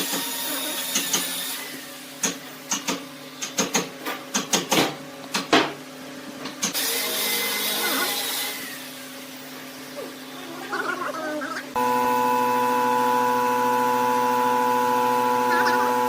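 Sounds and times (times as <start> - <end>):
sharp clicks and knocks: 2.2 - 5.8
wood lathe motor hum: 11.7 - 16.0.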